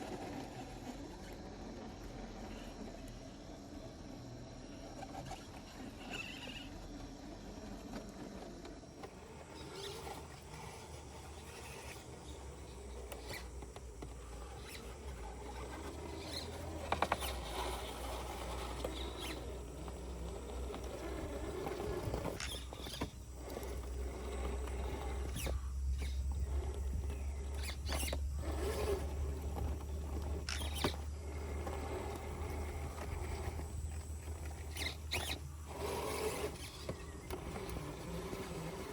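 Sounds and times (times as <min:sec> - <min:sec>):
tyres scrabbling over rocks: 0:08.8 - 0:38.9
electric motor whirring in spurts: 0:08.9 - 0:38.9.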